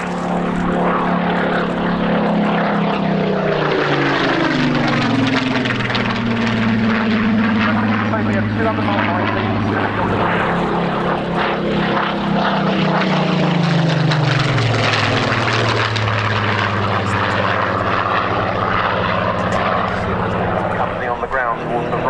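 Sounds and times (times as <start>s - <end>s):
propeller aircraft flying past: 0.0s - 22.0s.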